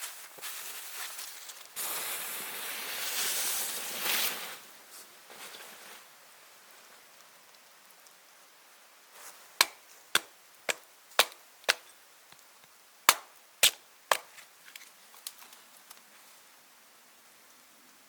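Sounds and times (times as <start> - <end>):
axe chopping wood: 9.6 - 11.9, 13.1 - 14.4.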